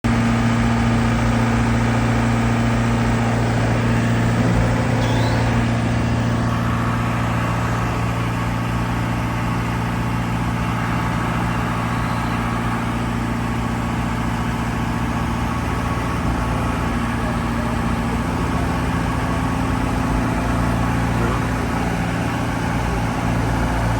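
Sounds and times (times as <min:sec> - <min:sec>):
skid steer engine running: 0:00.0 - 0:23.9.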